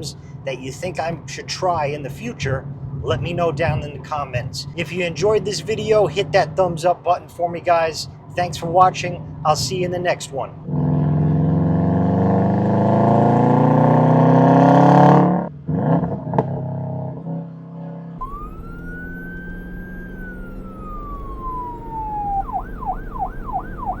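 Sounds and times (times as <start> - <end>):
car engine accelerating hard: 10.6 - 24.0
electronic siren wailing and yelping: 18.2 - 24.0.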